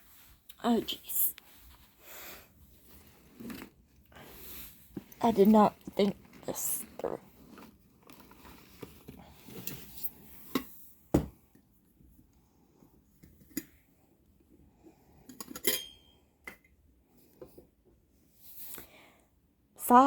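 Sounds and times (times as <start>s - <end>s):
ringing clink: 15.6s - 16.1s.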